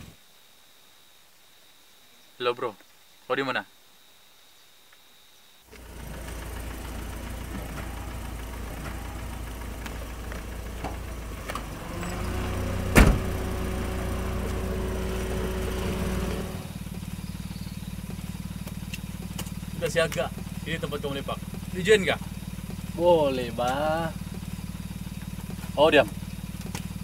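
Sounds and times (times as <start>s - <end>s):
car door shutting: 5.7s - 16.7s
car engine idling: 5.7s - 27.0s.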